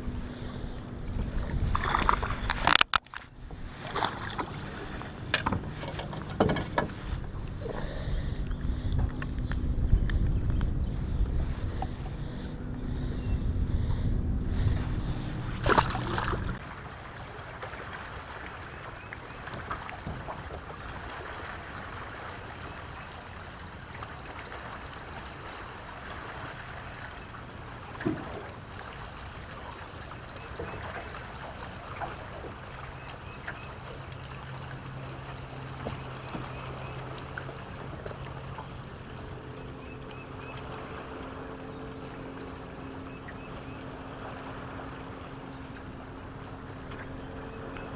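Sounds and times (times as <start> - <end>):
wind noise: 0.0 - 16.6
low steady hum: 0.0 - 47.9
water lapping: 0.0 - 47.9.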